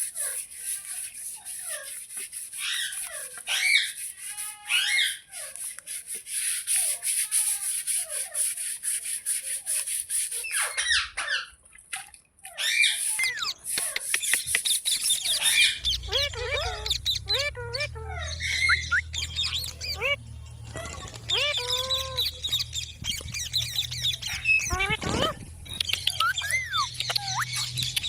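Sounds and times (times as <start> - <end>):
scratchy rasping: 0.0 - 10.7
parrots chirping: 0.2 - 5.8, 12.5 - 28.0.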